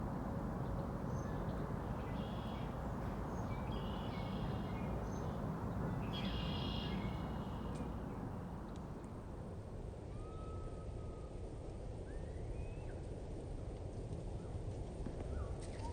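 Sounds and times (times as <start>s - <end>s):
songbirds singing: 0.0s - 9.1s
low rushing background noise: 0.0s - 10.0s.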